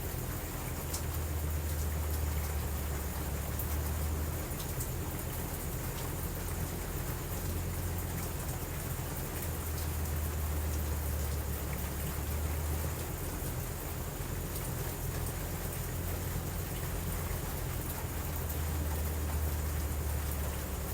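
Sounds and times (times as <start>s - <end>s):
steady rain: 0.0s - 20.9s.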